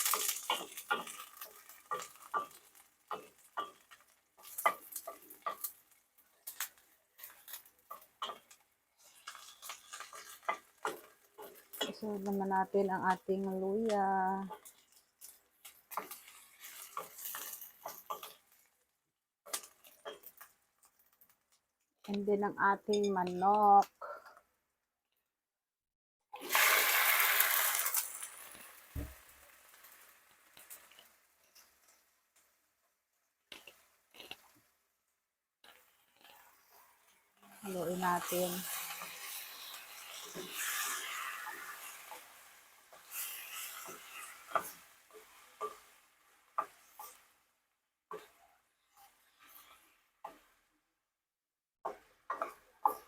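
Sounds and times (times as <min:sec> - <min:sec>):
utensil scraping frying pan: 0:00.0 - 0:12.0, 0:14.5 - 0:18.8, 0:35.6 - 0:47.4, 0:48.1 - 0:50.7
food sizzling in oil: 0:00.0 - 0:18.8, 0:19.5 - 0:21.1, 0:26.4 - 0:32.6, 0:35.6 - 0:50.7.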